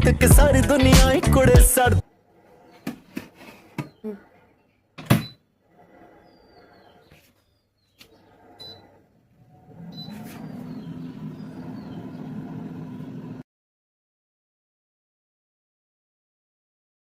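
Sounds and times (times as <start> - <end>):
air fryer fan humming: 9.4 - 13.4.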